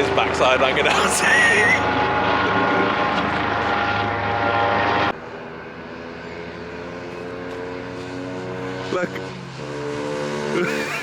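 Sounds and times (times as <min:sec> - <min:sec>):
small motorbike engine buzzing: 0:05.3 - 0:11.0.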